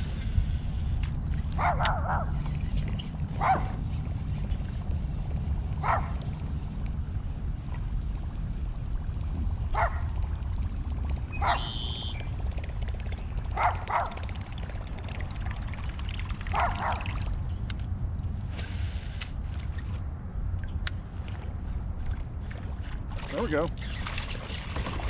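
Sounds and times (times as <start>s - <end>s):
steady low rumble: 0.0s - 23.3s
dog barking: 1.6s - 2.3s, 3.4s - 3.7s, 11.4s - 11.7s.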